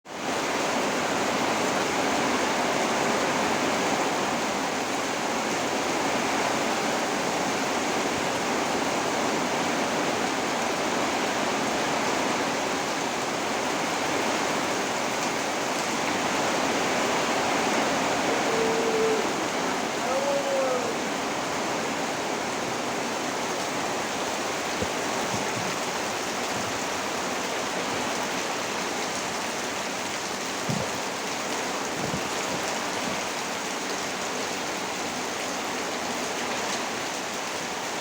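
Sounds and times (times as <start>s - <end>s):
heavy rain pouring: 0.1s - 38.0s.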